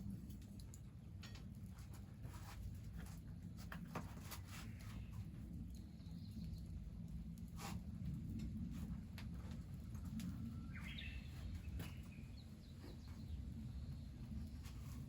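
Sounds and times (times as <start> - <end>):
birds chirping: 10.7 - 14.1.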